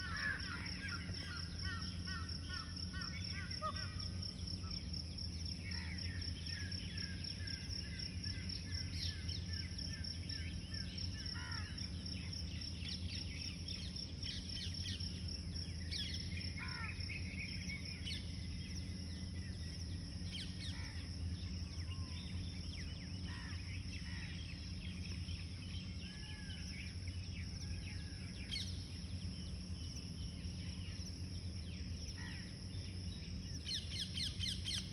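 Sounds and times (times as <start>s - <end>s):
birds chirping and calling: 0.0s - 4.4s, 30.2s - 34.9s
insects trilling: 0.0s - 34.9s
low steady hum: 0.0s - 34.9s.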